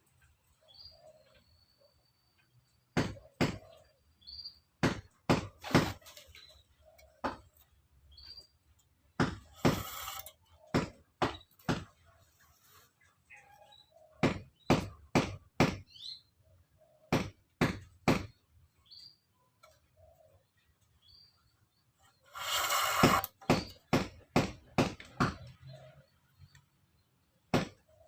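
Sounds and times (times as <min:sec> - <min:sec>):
small birds chirping: 0:00.0 - 0:04.8, 0:05.5 - 0:28.0
short scrape: 0:09.5 - 0:10.4, 0:22.3 - 0:23.4.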